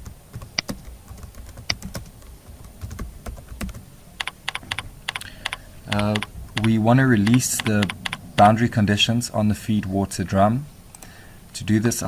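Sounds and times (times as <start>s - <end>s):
keyboard typing: 0.0s - 8.5s.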